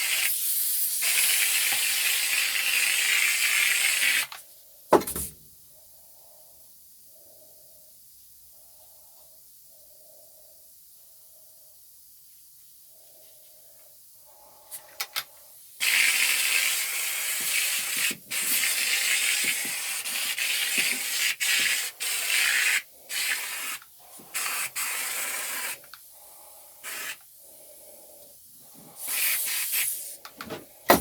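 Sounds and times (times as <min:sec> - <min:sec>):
spray gun hissing: 0:00.0 - 0:04.2, 0:15.8 - 0:25.8, 0:26.8 - 0:27.2, 0:28.9 - 0:30.2.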